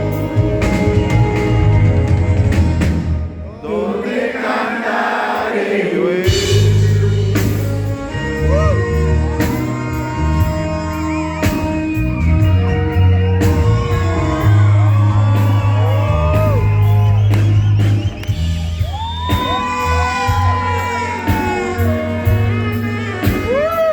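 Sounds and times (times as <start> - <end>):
heavy bass line: 0.0 - 3.4, 6.3 - 23.9
live rock band playing: 0.0 - 3.4, 6.2 - 23.9
drum and cymbal hits: 6.2 - 8.4, 13.4 - 23.9
crowd shouting and whooping: 8.3 - 23.9.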